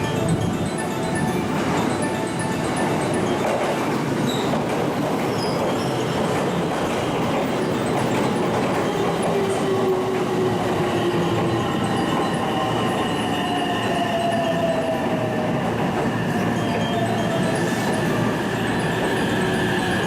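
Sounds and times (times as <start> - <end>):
electric train rolling: 0.0 - 20.0
train wheels squealing: 4.2 - 20.0.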